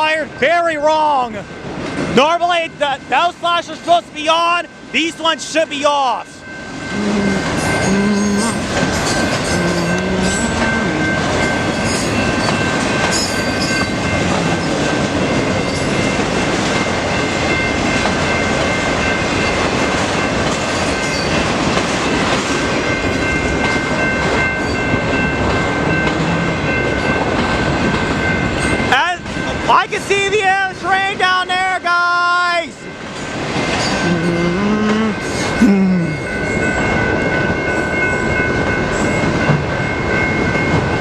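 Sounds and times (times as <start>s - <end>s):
steady high ringing: 0.0s - 41.0s
freight train wheels clattering: 7.4s - 31.8s, 32.9s - 34.1s.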